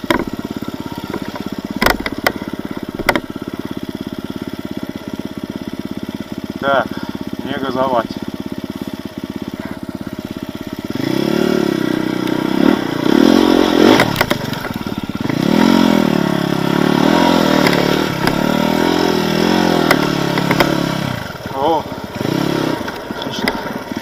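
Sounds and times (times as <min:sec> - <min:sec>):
dirt bike engine revving: 0:00.0 - 0:24.0
clattering knocks: 0:01.0 - 0:03.3.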